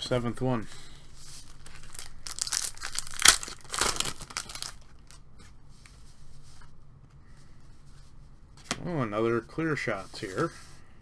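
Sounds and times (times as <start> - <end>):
wrapper crinkling: 1.4 - 5.2
wrapper tearing: 1.4 - 5.2.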